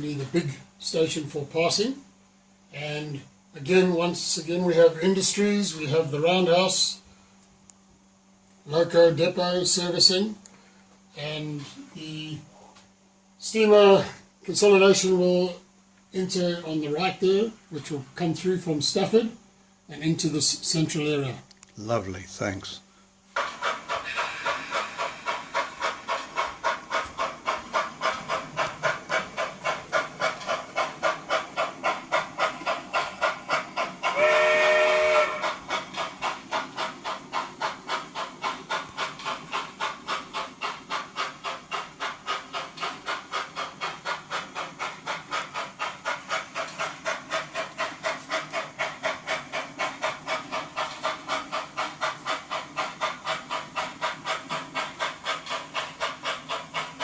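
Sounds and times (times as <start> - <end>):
model steam locomotive chuffing: 0.0 - 2.0, 2.8 - 7.0, 8.7 - 10.4, 13.4 - 15.6, 16.2 - 57.0
locomotive whistle chord: 34.2 - 35.4.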